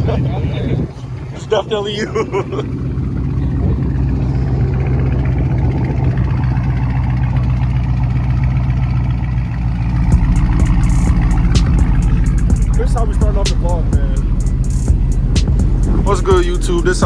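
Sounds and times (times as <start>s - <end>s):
car engine idling: 0.0s - 17.0s
music with a beat: 10.1s - 17.0s.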